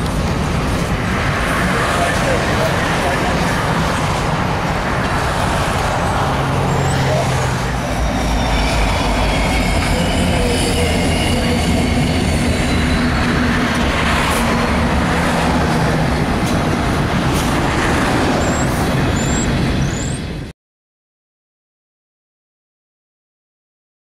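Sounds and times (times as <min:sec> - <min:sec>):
diesel locomotive running: 0:00.0 - 0:20.5
high wheel squeals: 0:06.4 - 0:15.5, 0:18.2 - 0:20.2
freight train wheels clattering: 0:07.7 - 0:20.1.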